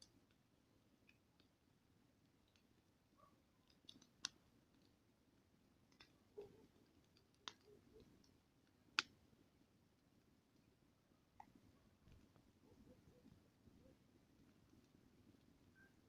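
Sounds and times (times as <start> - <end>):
campfire crackling: 0.0 - 16.0
sharp pops and snaps: 3.7 - 5.0, 5.9 - 9.2.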